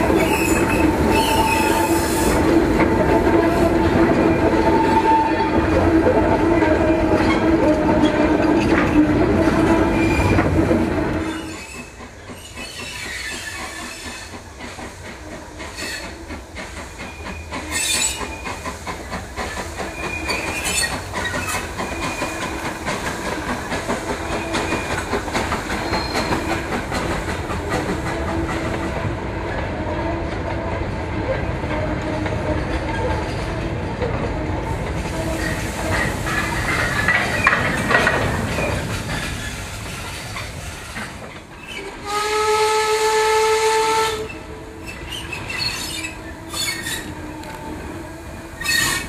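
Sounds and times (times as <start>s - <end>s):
train wheels rumbling and ringing: 0.0s - 49.0s
wheels clicking over rail joints: 2.4s - 29.7s, 30.3s - 42.2s
wheel squeals: 11.2s - 14.4s, 25.7s - 26.6s, 44.8s - 47.2s, 48.6s - 49.0s.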